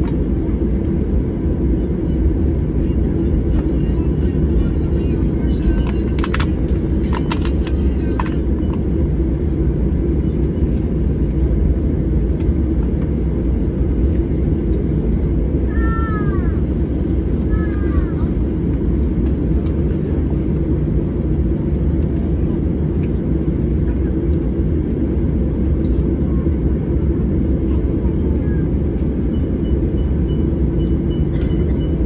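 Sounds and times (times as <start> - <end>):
airliner cabin rumble: 0.0 - 32.0.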